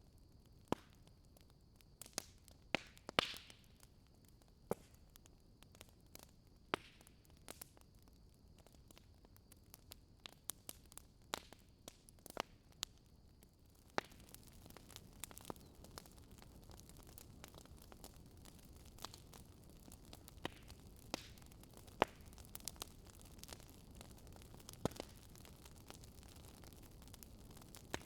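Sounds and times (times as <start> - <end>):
fireplace crackling: 13.8 - 28.0.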